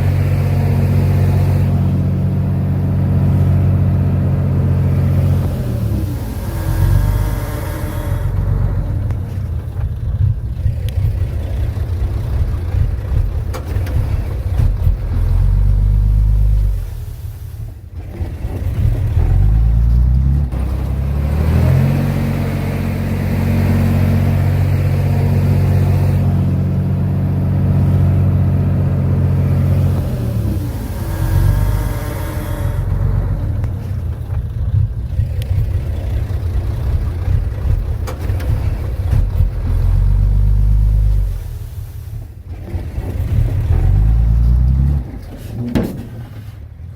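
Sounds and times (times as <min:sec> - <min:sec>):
bulldozer diesel engine under load: 0:00.0 - 0:46.9.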